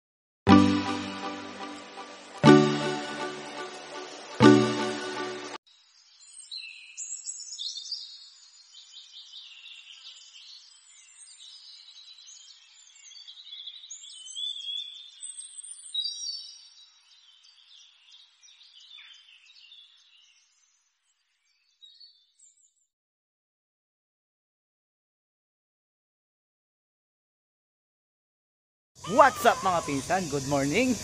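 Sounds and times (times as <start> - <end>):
birds singing and chirping: 6.2 - 20.6, 29.0 - 31.0.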